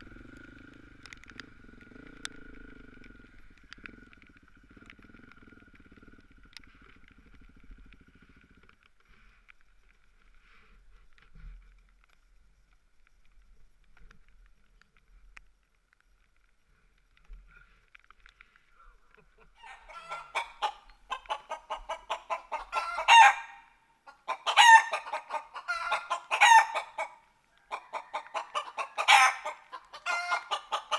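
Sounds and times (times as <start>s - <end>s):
chickens clucking: 19.5s - 30.9s
chicken squawking: 19.6s - 30.9s.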